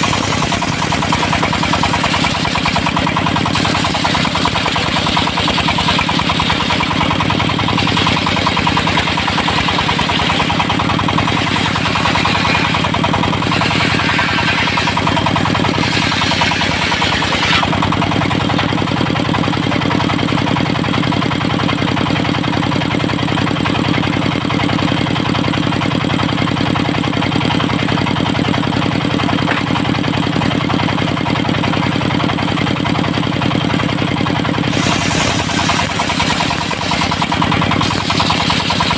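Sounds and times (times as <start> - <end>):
saw blade cutting wood: 0.0 - 18.8, 29.1 - 30.5, 34.4 - 38.9
diesel engine running: 0.0 - 38.9.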